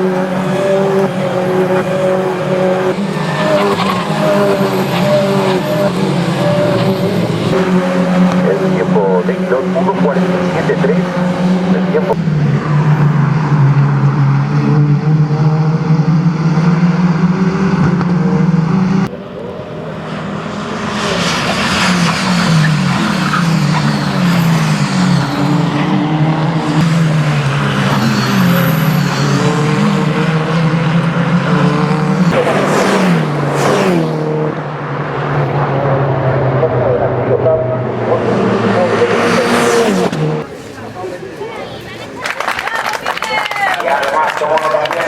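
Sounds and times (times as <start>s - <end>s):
race car engines revving: 0.0s - 45.0s
race car passing close: 0.0s - 45.0s.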